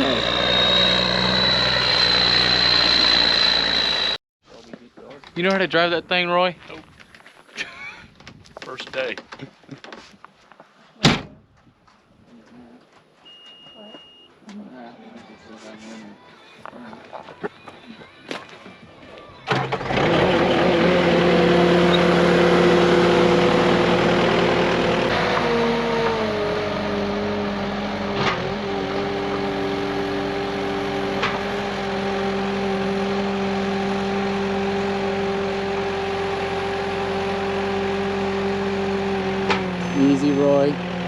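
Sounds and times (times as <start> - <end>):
diesel engine running: 0.0 - 4.2, 19.2 - 41.0.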